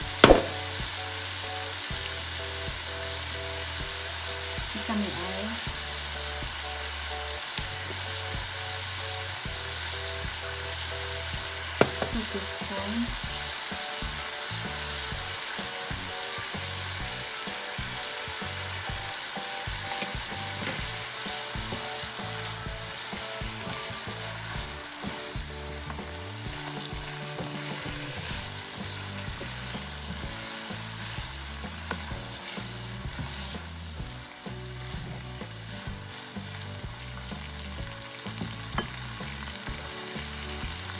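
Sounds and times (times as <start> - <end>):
food sizzling in a pan: 0.0 - 40.9
spatula stirring food: 19.6 - 37.6.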